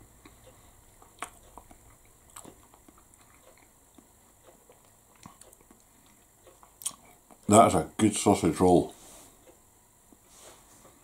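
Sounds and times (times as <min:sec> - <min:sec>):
chewing flaky pastry crunching: 0:00.2 - 0:07.5.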